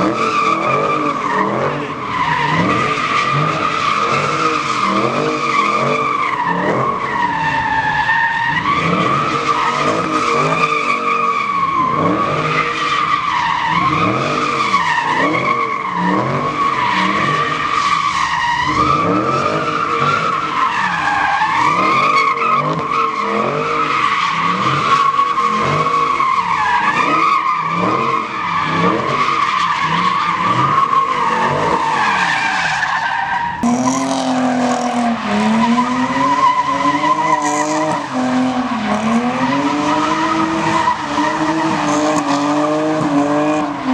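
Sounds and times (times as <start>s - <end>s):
engine revving: 33.6s - 43.9s.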